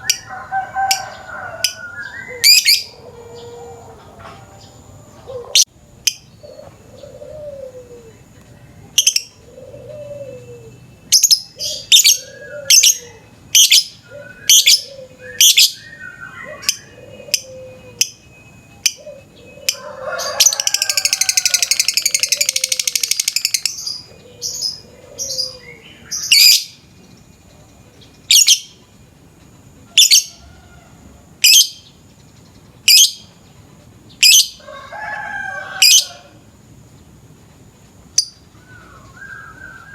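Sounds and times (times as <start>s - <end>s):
bird shrill chirps: 19.6s - 24.8s
bird rapid trilling chatter: 20.5s - 23.7s.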